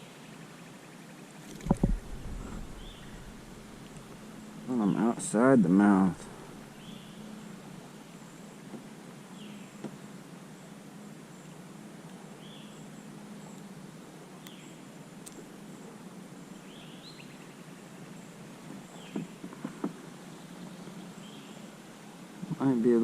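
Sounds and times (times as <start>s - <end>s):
steady hiss: 1.4s - 23.0s
bird chirping: 1.5s - 5.2s, 5.9s - 8.4s, 16.6s - 19.4s, 20.1s - 21.7s.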